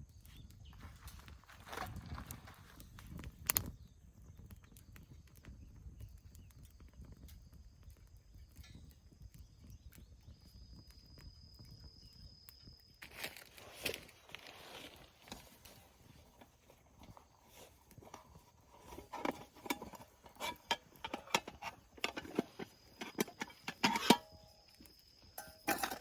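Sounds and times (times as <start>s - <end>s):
rustling and clattering: 13.1s - 24.5s, 25.4s - 26.0s.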